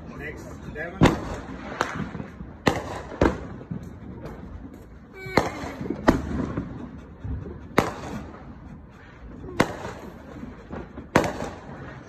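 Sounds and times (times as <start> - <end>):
fireworks bangs: 0.0 - 8.6, 9.4 - 12.0
small fireworks pops: 1.0 - 6.8, 7.8 - 8.4, 9.4 - 12.0.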